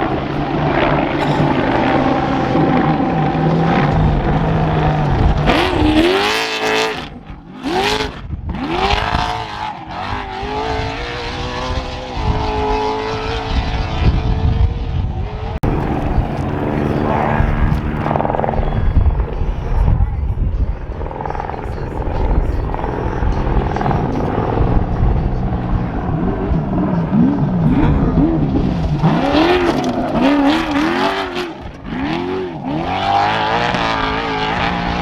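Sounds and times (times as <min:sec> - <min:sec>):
truck engine revving: 0:00.0 - 0:09.2, 0:15.6 - 0:19.4, 0:22.8 - 0:35.0.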